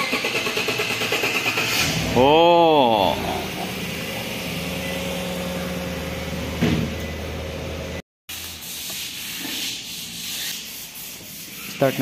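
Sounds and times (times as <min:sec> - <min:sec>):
car engine idling: 0:00.0 - 0:08.0.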